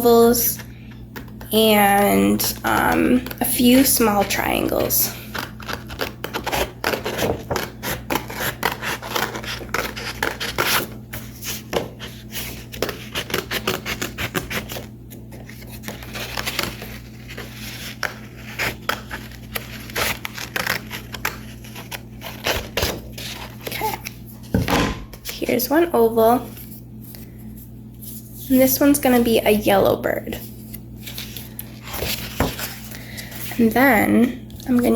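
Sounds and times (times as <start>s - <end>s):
scissors snipping paper: 2.4s - 10.9s, 12.6s - 14.8s, 15.6s - 24.1s.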